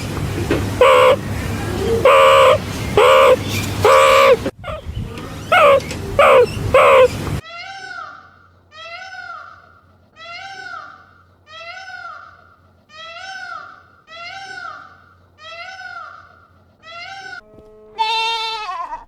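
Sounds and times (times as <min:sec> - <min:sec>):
animal high-pitched calls: 0:00.8 - 0:08.2, 0:16.8 - 0:19.0.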